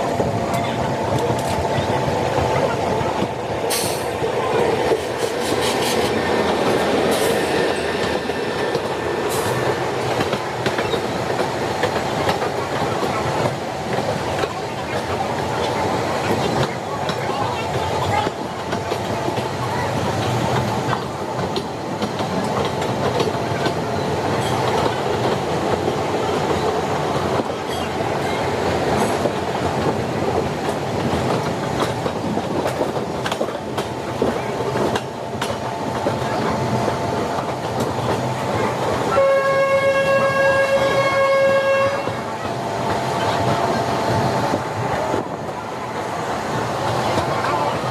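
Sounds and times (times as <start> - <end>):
train wheels clattering: 3.1 - 47.9
train horn blast: 39.1 - 42.3.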